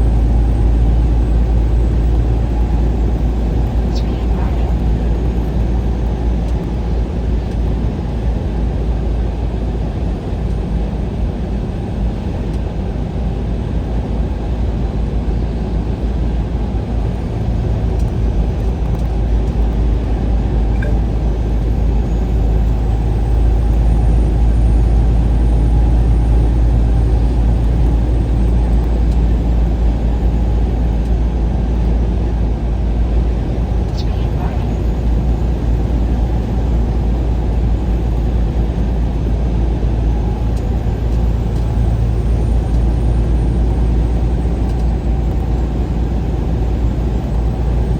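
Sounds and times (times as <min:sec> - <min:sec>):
vehicle road and engine rumble: 0:00.0 - 0:47.9.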